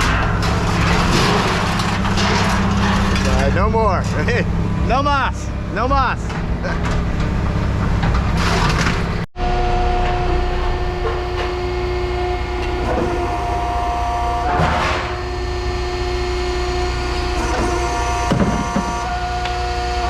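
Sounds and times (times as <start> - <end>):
scrap metal crunching and clattering: 0.0 - 4.6
heavy machine engine and hydraulics: 0.0 - 20.0.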